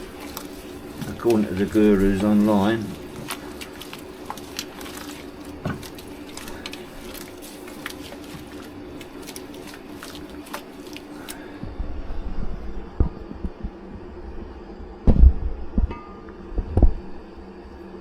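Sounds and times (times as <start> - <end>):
malt squishing in water: 0.0 - 11.6
low steady hum: 0.0 - 18.0.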